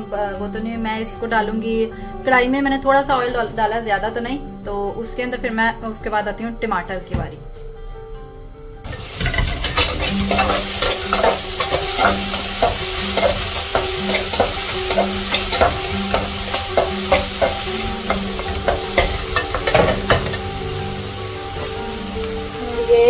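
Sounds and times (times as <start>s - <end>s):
onion paste sizzling: 8.8s - 23.0s
spoon scraping a pan: 8.9s - 20.6s.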